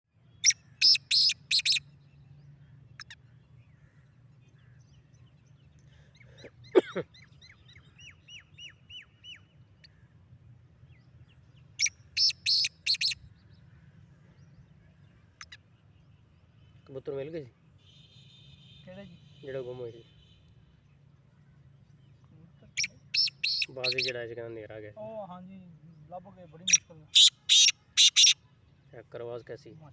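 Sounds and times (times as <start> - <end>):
down-slurred bird chirps: 0.3 - 2.2, 11.0 - 13.3, 21.9 - 25.1, 25.8 - 29.6
francolin harsh calls: 0.4 - 1.8, 11.8 - 13.2, 22.8 - 24.2, 26.6 - 28.4.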